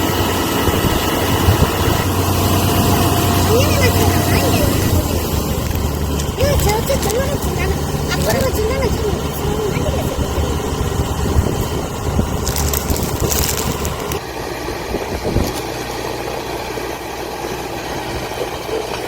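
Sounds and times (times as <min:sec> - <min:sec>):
combine harvester engine running: 0:00.0 - 0:19.0
rustling crunching of stalks: 0:01.4 - 0:14.2.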